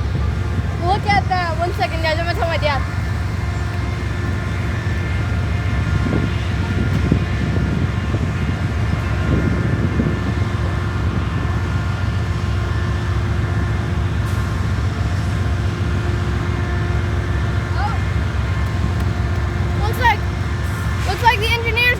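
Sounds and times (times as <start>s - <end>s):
locomotive engine idling: 0.0s - 21.9s.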